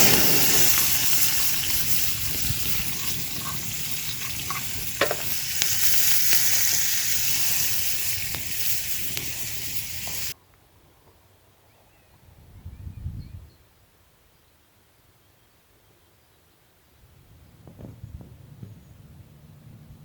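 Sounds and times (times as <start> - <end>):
food sizzling in a pan: 0.0 - 10.4
stirring clicks: 0.0 - 10.4.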